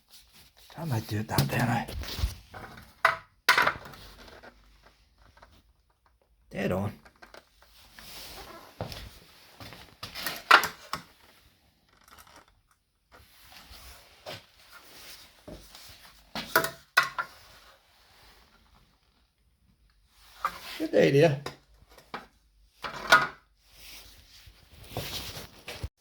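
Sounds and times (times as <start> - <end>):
scraping and rustling: 23.8 - 25.9.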